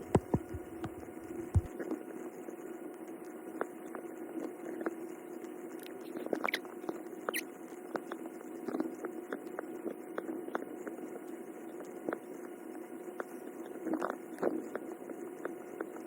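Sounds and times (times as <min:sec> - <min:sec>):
steady low hum: 0:00.0 - 0:02.4.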